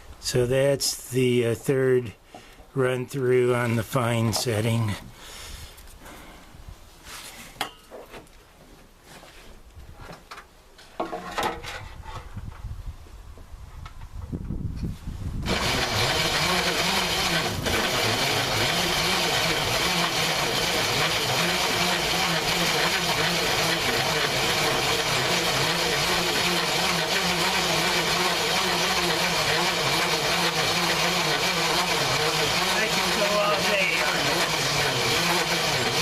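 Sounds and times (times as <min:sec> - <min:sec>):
corn grinder grinding: 0:15.4 - 0:36.0.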